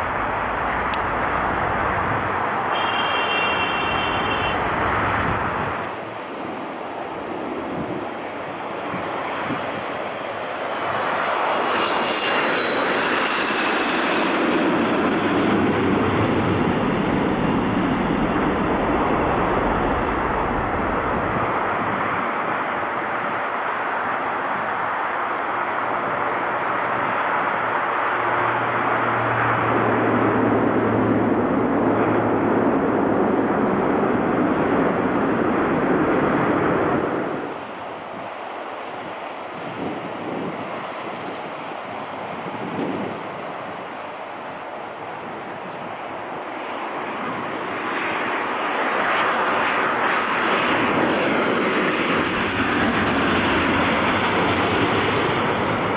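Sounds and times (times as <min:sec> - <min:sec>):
high engine whine: 0:00.0 - 0:23.0, 0:43.7 - 0:55.9
jet engines running: 0:00.0 - 0:55.9.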